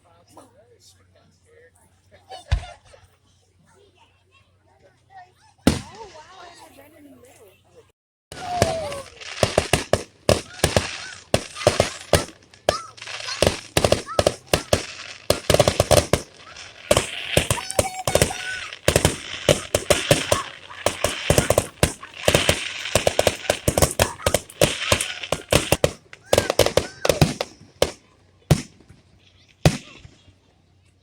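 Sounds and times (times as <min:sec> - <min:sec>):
fireworks bangs and crackles: 0:05.7 - 0:06.2, 0:08.3 - 0:30.3
firework whistles: 0:08.3 - 0:28.8.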